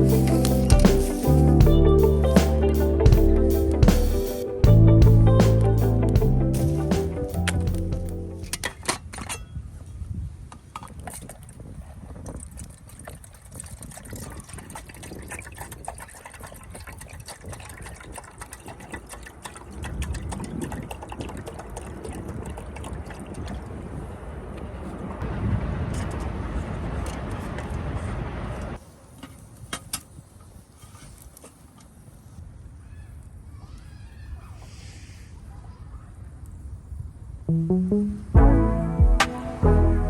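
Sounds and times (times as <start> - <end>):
water pouring into container: 12.6 - 23.7.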